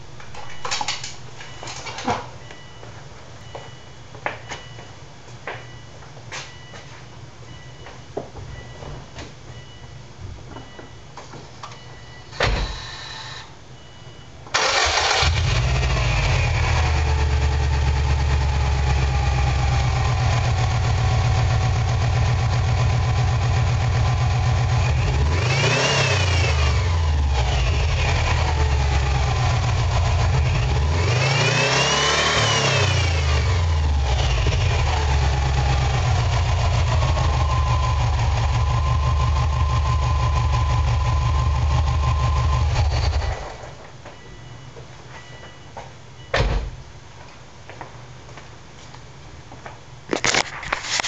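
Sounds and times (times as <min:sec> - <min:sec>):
car engine cranking: 0:14.5 - 0:43.8
car engine idling: 0:14.6 - 0:25.6, 0:33.1 - 0:43.3
car engine revving: 0:14.6 - 0:43.4.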